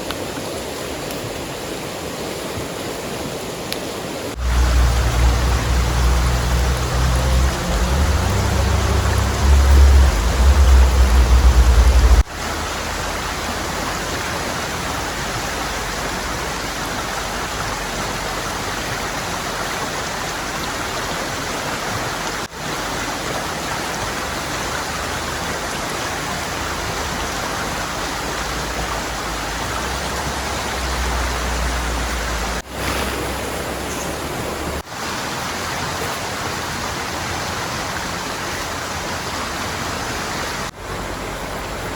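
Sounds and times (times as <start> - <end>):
heavy rain: 0.0 - 41.9
rushing river water: 0.0 - 41.9
deep rumble: 4.4 - 13.8.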